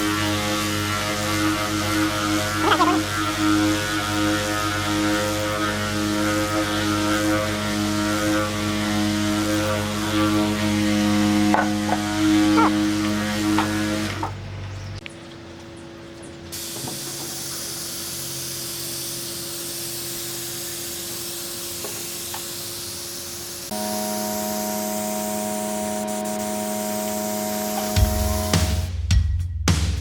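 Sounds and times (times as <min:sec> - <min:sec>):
machine hum: 0:00.0 - 0:29.0
spraying hiss: 0:16.5 - 0:28.9
low beat: 0:25.4 - 0:30.0.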